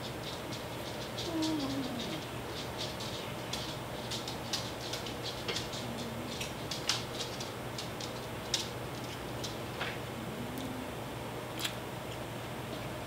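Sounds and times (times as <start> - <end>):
chewing with wet mouth clicks: 11.6 - 12.2.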